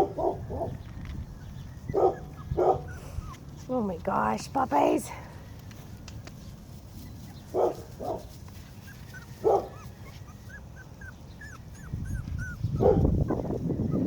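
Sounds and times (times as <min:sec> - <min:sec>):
puppies yipping and whimpering: 0:01.3 - 0:03.6, 0:08.5 - 0:14.0.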